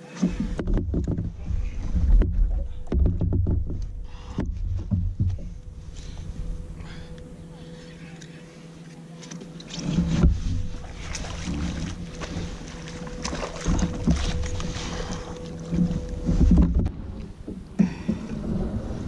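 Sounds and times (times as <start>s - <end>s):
knocks and thumps in kayak: 0.0s - 7.0s, 9.6s - 19.0s
water lapping at kayak hull: 0.0s - 19.0s
wind buffeting microphone: 10.2s - 19.0s.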